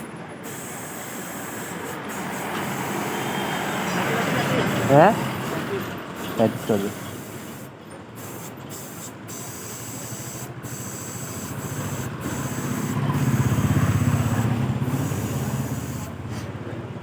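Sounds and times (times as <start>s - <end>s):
air hose hissing: 0.4s - 16.5s
pulsing mechanical rumble: 11.4s - 16.1s.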